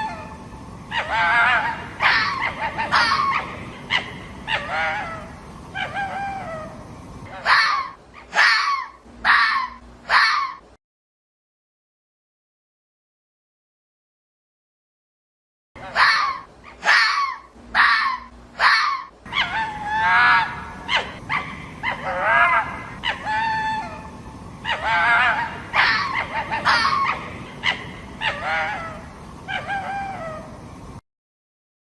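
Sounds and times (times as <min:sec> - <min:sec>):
fox calling: 0:00.0 - 0:10.6, 0:15.8 - 0:30.6
background hiss: 0:00.0 - 0:10.8, 0:15.8 - 0:31.0.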